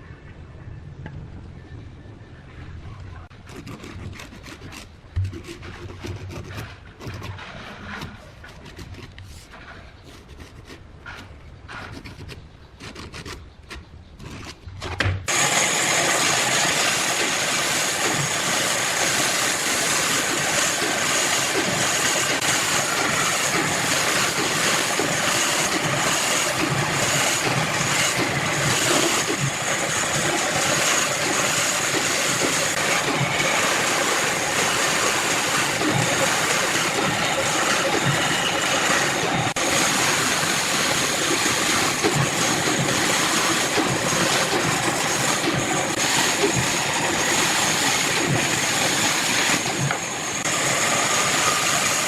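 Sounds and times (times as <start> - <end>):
knocks and scraping on wood: 3.4 - 15.3.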